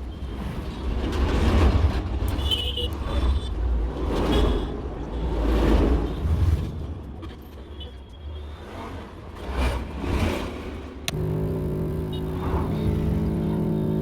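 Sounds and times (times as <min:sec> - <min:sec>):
vehicles passing with low rumble: 0:08.5 - 0:14.0.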